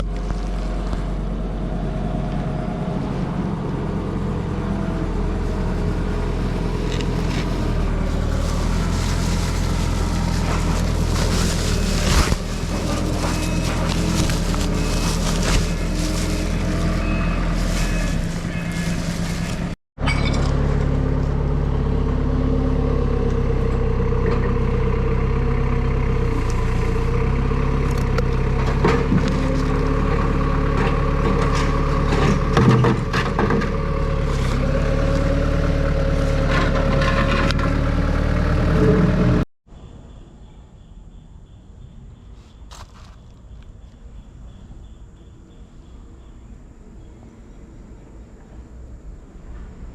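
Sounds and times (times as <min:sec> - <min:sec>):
diesel engine running: 0:00.0 - 0:19.8, 0:20.5 - 0:39.4.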